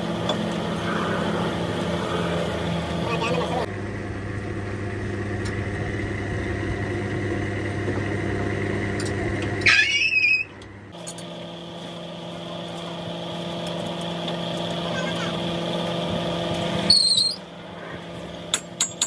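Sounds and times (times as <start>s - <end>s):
engine running: 0.0s - 19.0s
machine hum: 0.0s - 19.0s
loud pitch-bending squeal: 9.6s - 10.6s, 16.9s - 17.5s.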